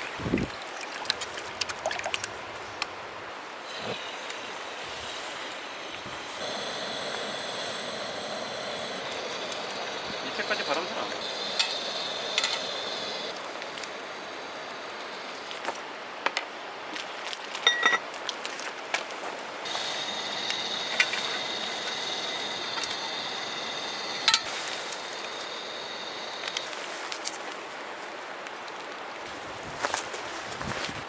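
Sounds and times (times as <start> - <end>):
steady hiss: 2.2 - 16.2, 19.4 - 28.0
tableware clinking: 17.6 - 18.1.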